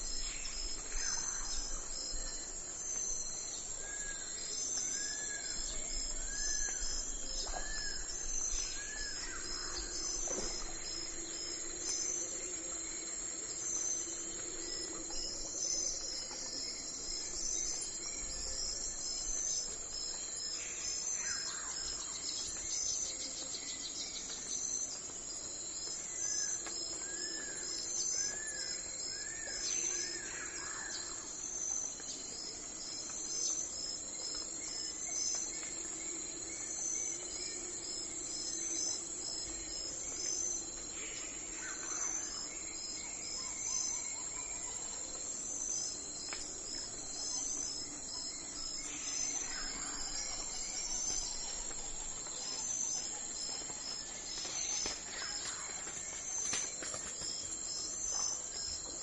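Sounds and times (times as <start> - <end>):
crickets chirping: 0.0 - 59.0
high insect drone: 0.0 - 59.0.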